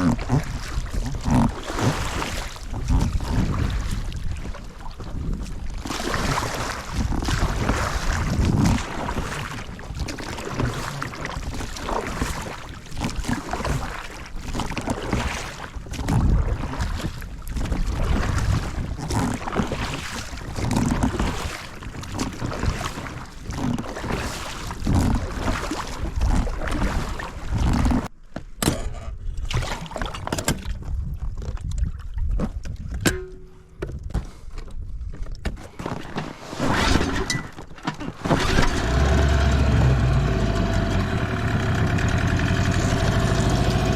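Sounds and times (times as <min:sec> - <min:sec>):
wind buffeting microphone: 0:02.6 - 0:10.2
water rushing and splashing: 0:38.2 - 0:43.9.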